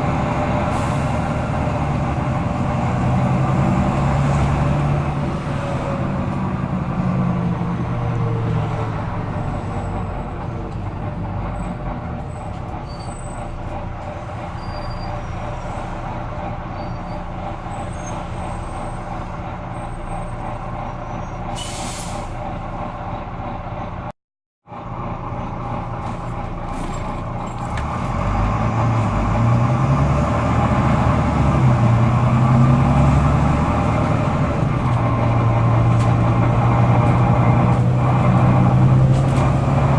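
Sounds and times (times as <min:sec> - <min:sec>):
bus diesel engine revving: 0:00.0 - 0:24.1, 0:24.7 - 0:39.9
air brake hiss: 0:21.5 - 0:22.4.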